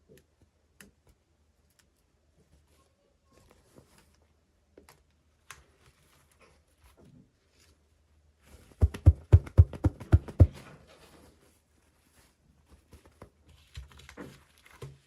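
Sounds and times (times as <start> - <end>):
sharp knocks: 8.8 - 10.6.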